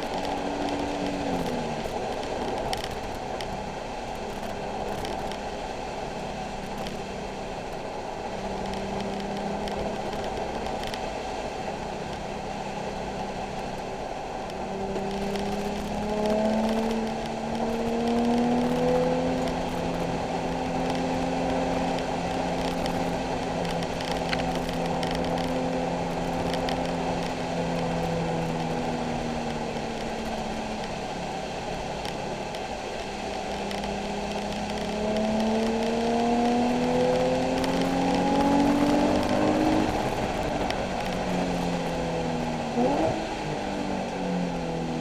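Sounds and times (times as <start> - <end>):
car engine revving: 12.9 - 32.4, 33.1 - 45.0.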